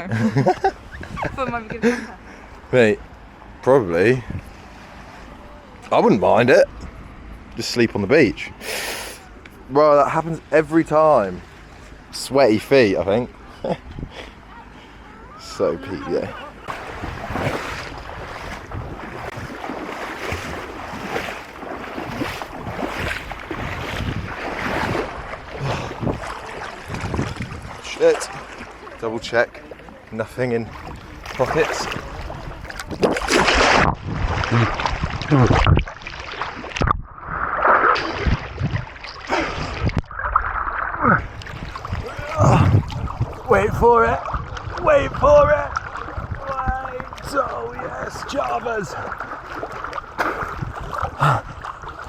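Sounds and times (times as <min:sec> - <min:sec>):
wind buffeting microphone: 0:00.0 - 0:01.8, 0:04.1 - 0:04.8, 0:15.8 - 0:28.9, 0:30.2 - 0:52.0
sea water sloshing: 0:00.0 - 0:52.0.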